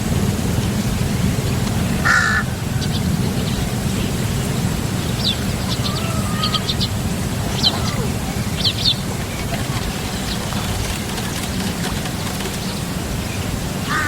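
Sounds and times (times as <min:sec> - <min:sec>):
low outdoor rumble: 0:00.0 - 0:14.0
harsh bird call: 0:02.0 - 0:03.1, 0:05.2 - 0:09.0.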